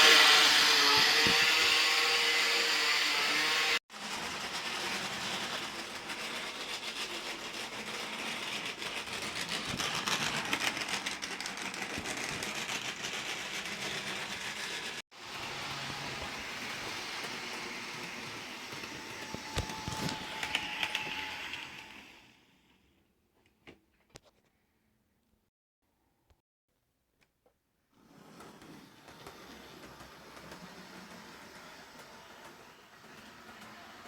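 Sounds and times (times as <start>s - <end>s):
model train motor whir: 0.0s - 22.3s, 28.3s - 34.0s.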